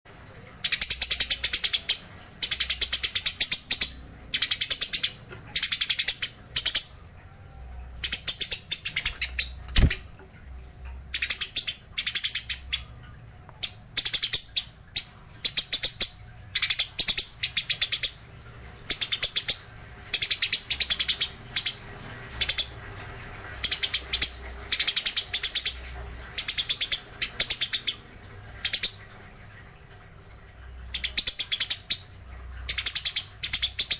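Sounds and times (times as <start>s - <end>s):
sparrow rattling chirps: 0.6s - 6.9s, 8.0s - 10.1s, 11.1s - 12.9s, 13.6s - 18.2s, 18.9s - 22.8s, 23.5s - 28.0s, 32.7s - 33.9s.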